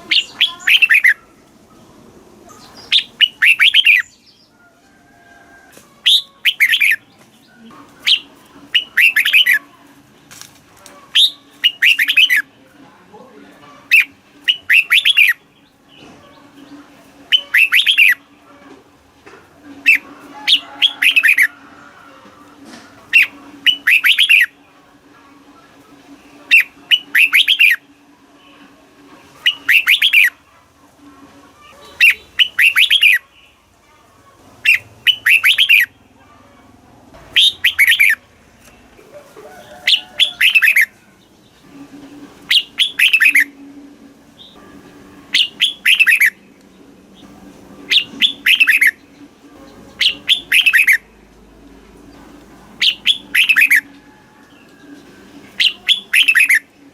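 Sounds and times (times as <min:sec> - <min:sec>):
bulbul singing: 0:00.0 - 0:01.3, 0:02.5 - 0:04.6, 0:06.0 - 0:09.7, 0:11.1 - 0:12.6, 0:13.8 - 0:18.4, 0:19.7 - 0:21.5, 0:23.1 - 0:24.7, 0:26.2 - 0:28.7, 0:29.4 - 0:30.4, 0:31.6 - 0:33.6, 0:34.6 - 0:36.2, 0:37.2 - 0:38.8, 0:39.6 - 0:56.9.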